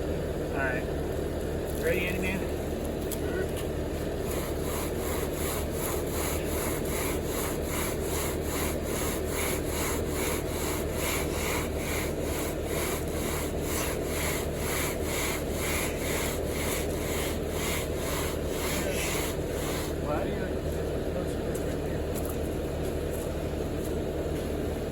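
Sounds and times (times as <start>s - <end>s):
engine hum: 0.0s - 24.9s
screed board scraping wet concrete: 4.2s - 20.1s.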